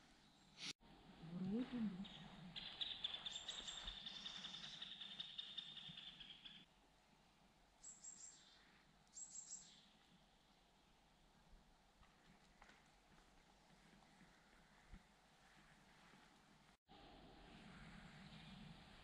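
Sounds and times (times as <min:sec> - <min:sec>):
songbird trill: 0:01.7 - 0:06.7, 0:07.8 - 0:10.1.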